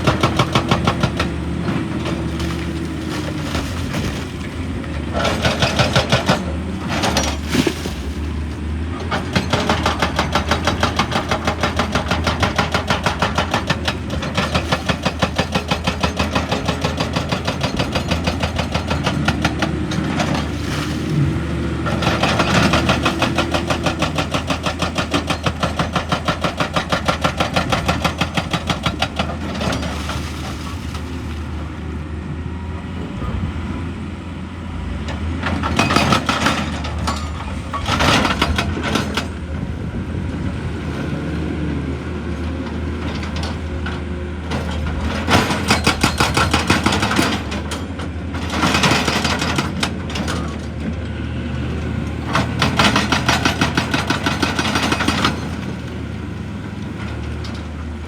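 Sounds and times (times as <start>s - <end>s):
hydraulic breaker hammering rock: 0.0s - 7.9s, 9.0s - 30.9s, 35.4s - 39.7s, 44.5s - 50.7s, 52.2s - 55.8s
diesel engine running: 0.0s - 58.0s.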